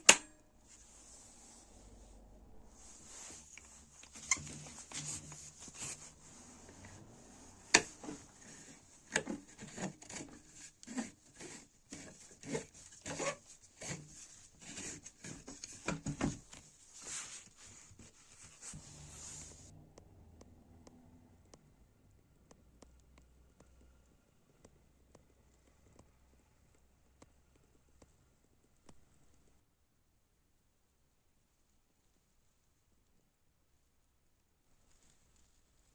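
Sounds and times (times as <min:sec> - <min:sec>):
faint steady hiss: 0:00.0 - 0:09.2.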